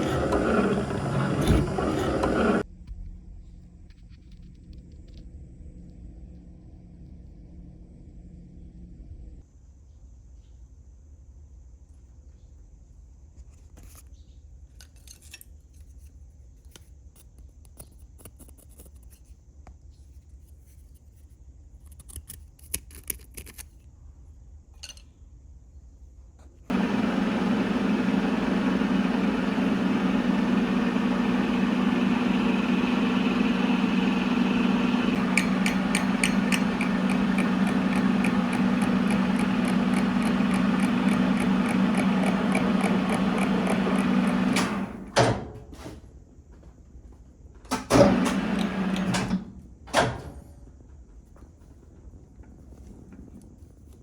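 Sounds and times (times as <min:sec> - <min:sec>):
loud machine hum: 0:00.0 - 0:02.6, 0:26.7 - 0:45.2, 0:48.0 - 0:49.3.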